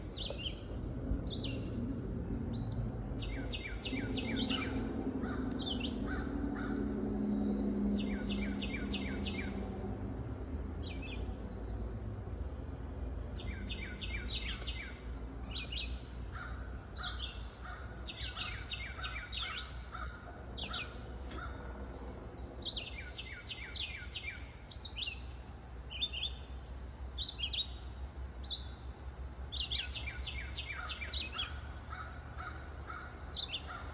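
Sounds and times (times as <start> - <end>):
low hum: 0.0 - 30.4
small songbirds whistling: 2.5 - 6.3, 7.2 - 9.6, 13.4 - 19.9, 22.6 - 26.6, 27.2 - 28.9, 29.5 - 32.2.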